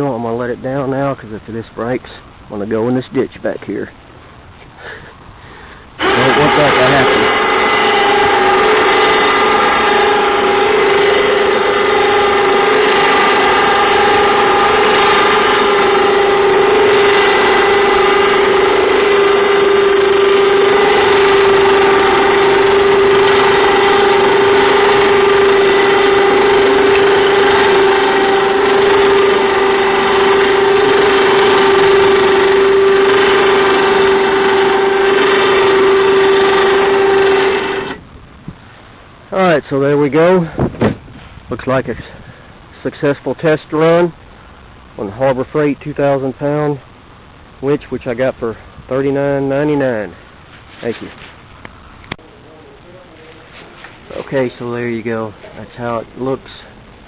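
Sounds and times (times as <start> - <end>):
electric winch motor whining: 5.9 - 38.1.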